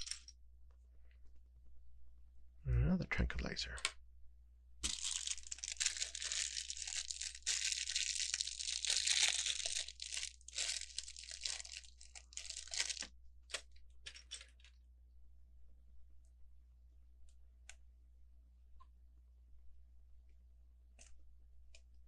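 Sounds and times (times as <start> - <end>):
plastic bag crinkling: 4.8 - 14.7.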